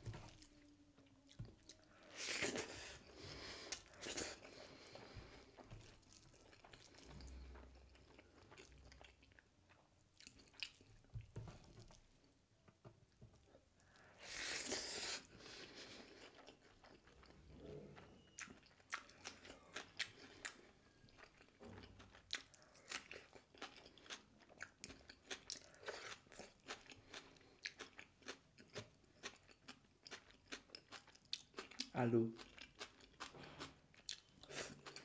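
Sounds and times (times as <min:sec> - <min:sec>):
crunchy chewing: 0:18.0 - 0:35.0.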